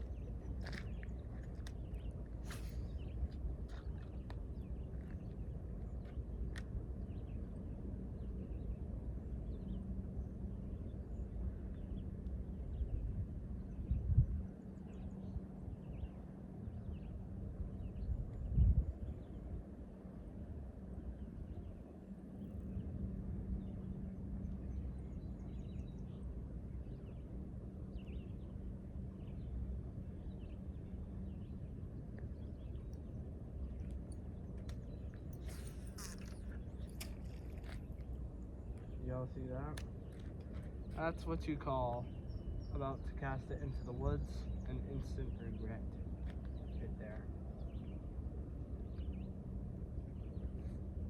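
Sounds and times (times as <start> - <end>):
faint constant hum: 0.0 - 51.0
low outdoor rumble: 0.0 - 51.0
small birds chirping: 30.2 - 48.0
faint bird chirps: 34.7 - 38.0.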